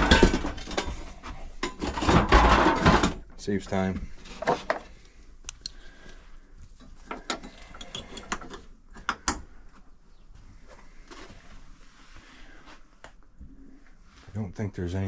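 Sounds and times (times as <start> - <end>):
tools clicking and clacking: 5.5 - 5.8.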